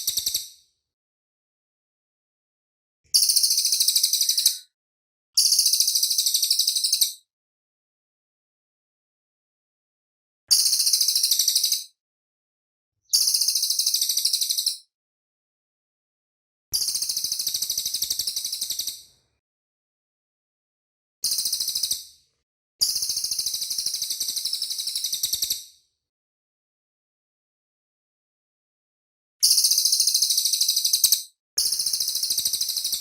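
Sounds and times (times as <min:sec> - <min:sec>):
songbird fast trill: 0:03.2 - 0:04.7, 0:10.6 - 0:11.9, 0:13.1 - 0:14.9, 0:22.8 - 0:25.7, 0:29.4 - 0:33.0.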